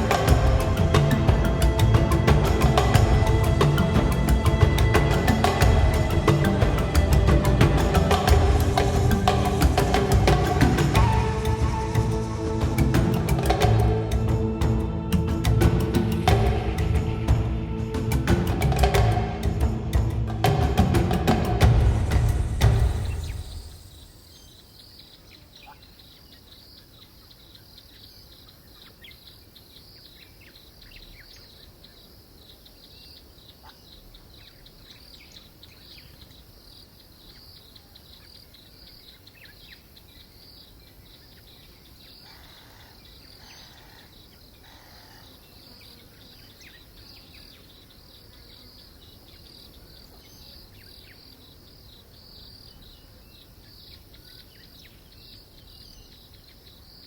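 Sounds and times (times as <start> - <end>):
insects trilling: 22.7 - 57.0.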